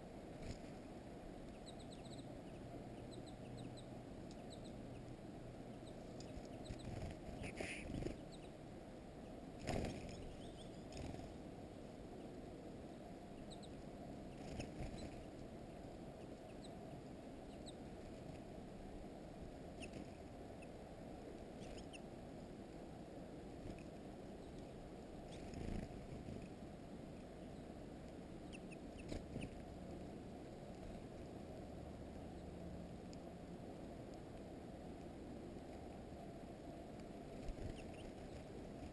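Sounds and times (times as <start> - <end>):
low background rumble: 0.0 - 38.9
small songbirds chirping: 1.4 - 18.4, 19.5 - 20.8, 21.4 - 22.2, 23.5 - 29.8, 31.9 - 32.7, 37.4 - 38.9.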